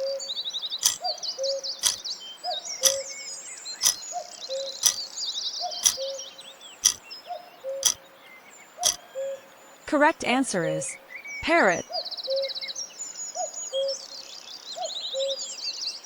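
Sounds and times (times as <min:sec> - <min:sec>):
countdown timer ticking: 0:11.4 - 0:11.8.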